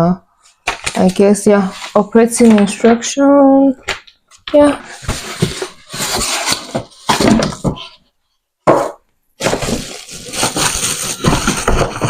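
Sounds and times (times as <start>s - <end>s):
packaging rustling and scraping: 0.4s - 2.8s, 4.8s - 8.1s, 9.4s - 12.0s.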